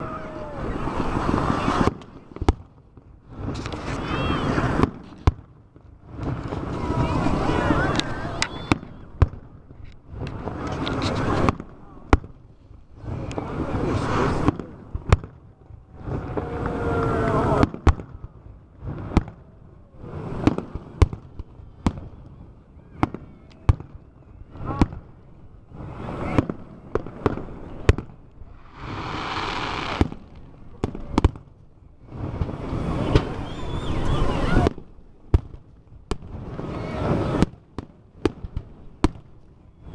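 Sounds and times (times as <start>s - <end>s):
fireworks hissing and crackling: 0.0s - 22.2s, 23.0s - 39.9s
firework shells bursting: 27.9s - 31.4s.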